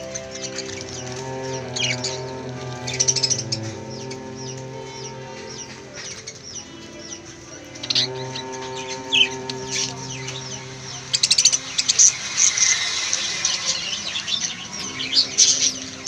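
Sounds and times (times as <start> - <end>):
steady low tone: 0.0 - 12.6
lovebirds chirping: 0.0 - 16.0.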